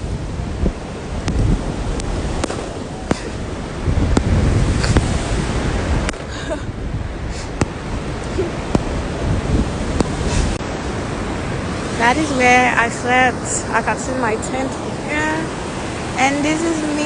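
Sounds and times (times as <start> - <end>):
ocean surf: 0.0 - 17.0
wind: 0.0 - 17.0
fireworks banging: 2.4 - 3.4.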